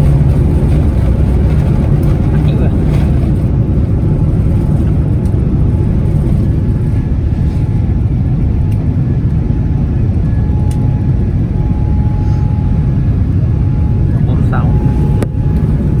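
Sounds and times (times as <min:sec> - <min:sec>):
airplane cabin engine rumble: 0:00.0 - 0:16.0
faint thin tone: 0:11.7 - 0:12.8.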